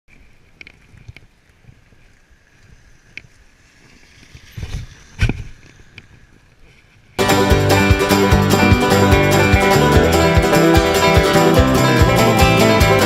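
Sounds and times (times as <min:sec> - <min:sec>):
faint outdoor background noise: 0:00.1 - 0:13.0.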